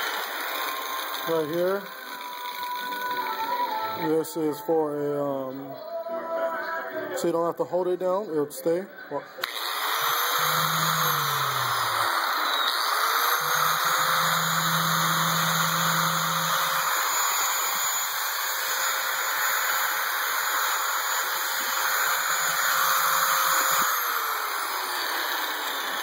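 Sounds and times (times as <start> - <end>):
angle grinder whining: 0.0 - 5.7, 9.4 - 26.0.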